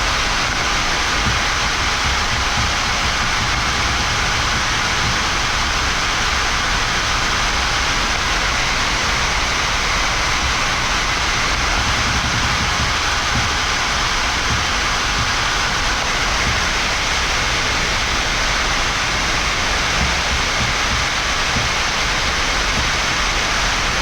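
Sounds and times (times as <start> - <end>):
cockpit ventilation hiss: 0.0 - 24.0.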